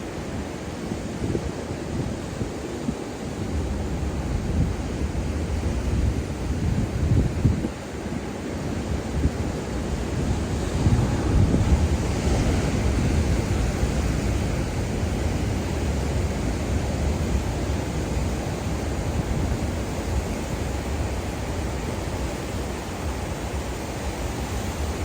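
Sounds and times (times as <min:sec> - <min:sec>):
wind buffeting microphone: 0:00.1 - 0:25.0
surf breaking on beach: 0:08.7 - 0:25.0.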